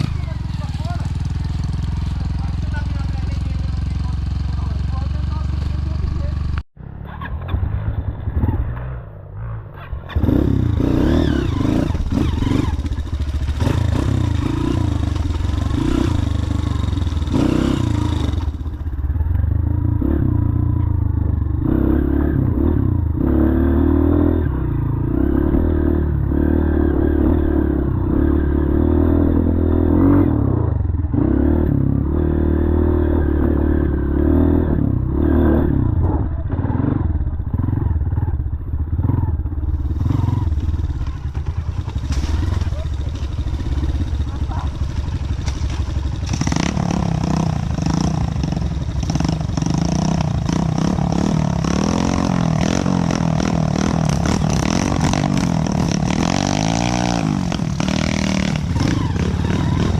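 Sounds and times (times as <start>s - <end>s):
motorcycle engine running: 0.0s - 59.9s
rattling and clatter: 40.5s - 47.4s.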